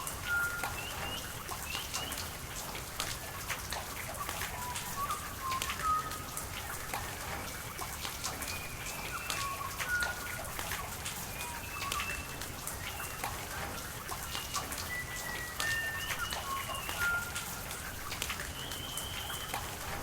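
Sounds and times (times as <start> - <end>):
high whistled bird calls: 0.0 - 2.3, 7.1 - 13.5, 14.1 - 17.7, 18.4 - 19.8
rain dripping: 0.0 - 20.0.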